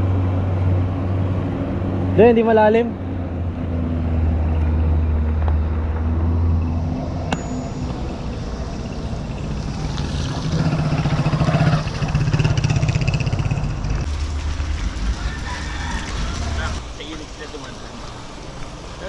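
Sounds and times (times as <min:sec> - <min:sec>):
vehicle engine speeding up: 0:02.9 - 0:16.8.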